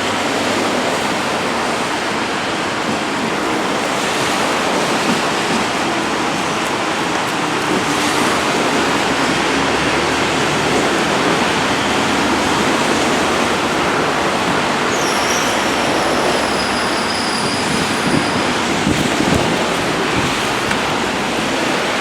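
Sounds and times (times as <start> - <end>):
train running on rails: 0.0 - 22.0
rain hiss: 0.2 - 22.0
high wheel squeal: 11.2 - 22.0.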